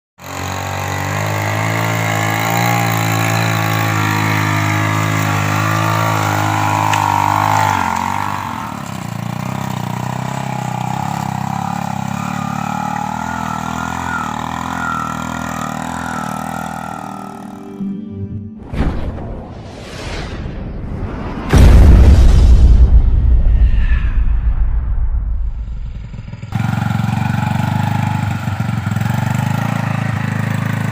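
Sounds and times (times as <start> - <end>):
motorcycle engine running: 0.2 - 17.8, 25.5 - 30.9.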